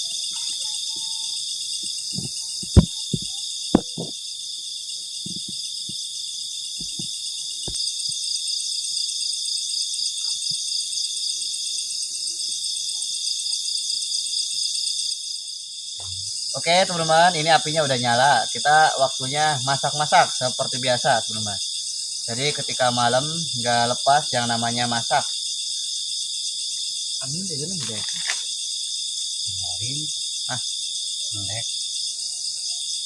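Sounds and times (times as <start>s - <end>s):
crickets and insects trilling: 0.0s - 33.0s
sharp clicks and knocks: 2.2s - 4.1s.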